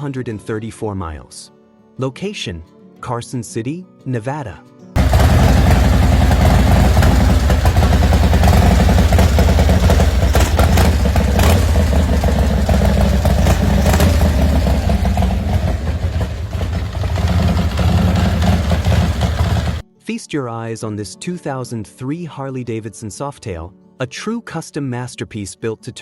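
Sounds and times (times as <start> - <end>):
motorcycle engine running loud: 5.0 - 19.8.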